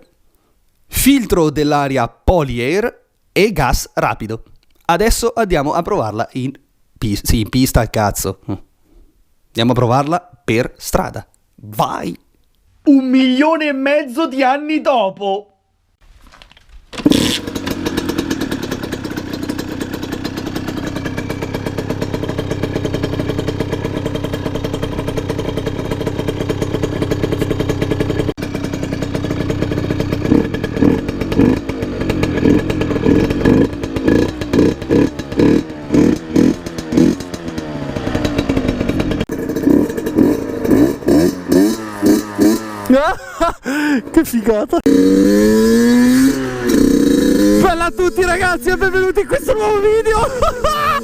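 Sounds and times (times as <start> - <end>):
two-stroke engine revving: 17.0 - 51.0.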